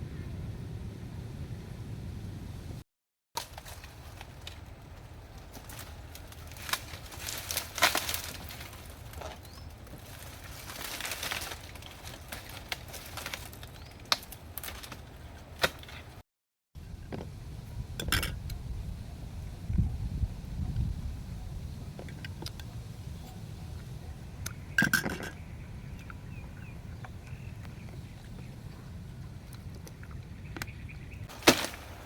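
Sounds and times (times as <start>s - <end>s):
steady low rumble: 0.0s - 2.8s, 16.8s - 31.3s
objects clicking and clinking: 24.8s - 25.4s.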